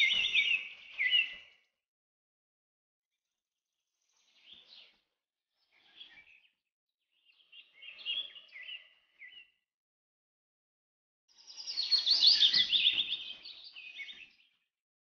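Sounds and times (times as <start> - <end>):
birds chirping: 0.0 - 1.7, 11.4 - 14.6.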